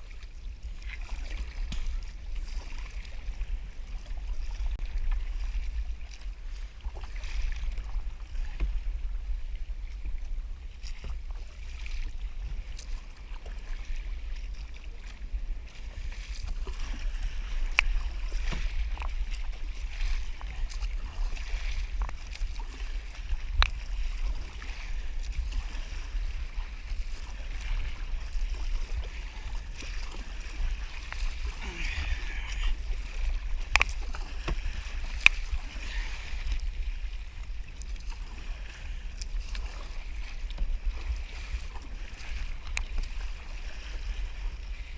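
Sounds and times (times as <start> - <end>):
water splashing against kayak: 0.0 - 44.9
wind rumble on microphone: 0.0 - 44.9.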